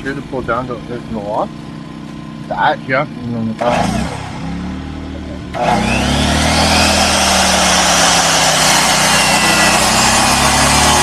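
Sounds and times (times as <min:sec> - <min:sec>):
power tool whining: 0:03.6 - 0:11.0.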